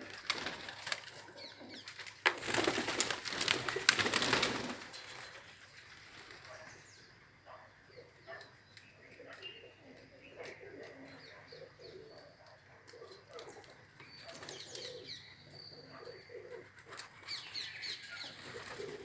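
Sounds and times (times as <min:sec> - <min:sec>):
birds flapping wings: 0:00.0 - 0:06.7, 0:18.4 - 0:19.0
bird sounds: 0:00.0 - 0:19.0.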